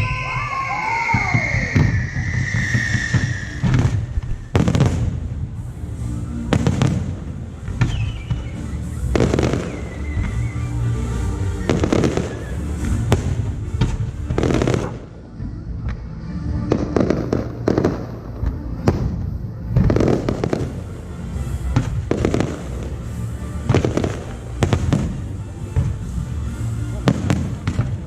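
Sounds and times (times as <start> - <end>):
faint falling whistle: 0.0 - 4.6, 7.9 - 10.8
fireworks bursting: 0.0 - 15.2, 16.7 - 28.0
low rumble: 1.8 - 9.3.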